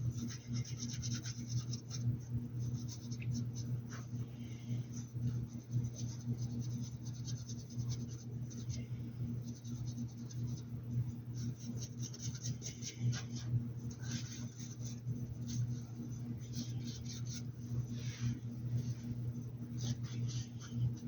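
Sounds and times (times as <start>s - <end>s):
low electrical hum: 0.0s - 21.0s
paintbrush strokes: 11.3s - 21.0s.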